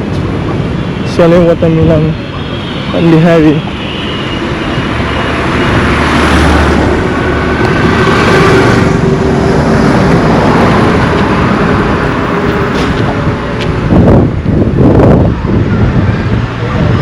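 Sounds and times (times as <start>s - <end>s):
highway traffic noise: 0.0s - 17.0s
vehicle passing close by: 4.3s - 17.0s.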